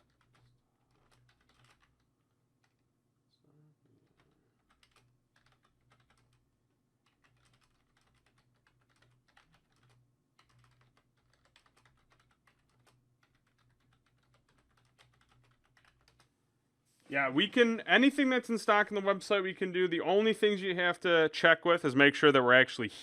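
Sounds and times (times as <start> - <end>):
computer keyboard typing: 0.0 - 2.0, 2.6 - 2.8, 4.1 - 6.4, 7.0 - 16.3.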